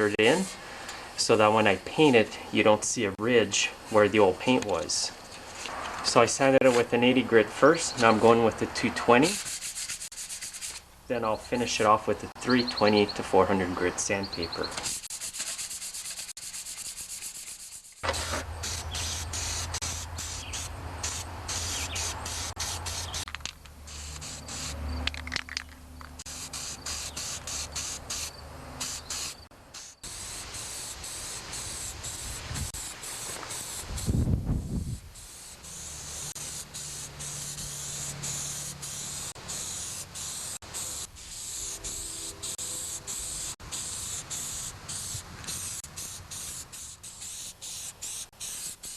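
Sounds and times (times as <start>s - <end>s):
paint spraying: 9.1s - 10.8s, 14.7s - 25.3s, 26.2s - 48.9s
sandpaper rubbing on metal: 9.1s - 10.8s, 14.8s - 23.3s, 23.9s - 24.8s, 26.3s - 34.2s, 35.2s - 48.9s.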